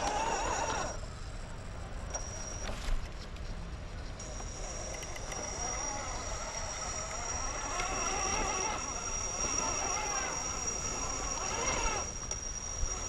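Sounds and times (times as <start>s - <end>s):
lower motor whine wavering: 0.0s - 13.0s
high-pitched electric whine: 4.2s - 13.0s.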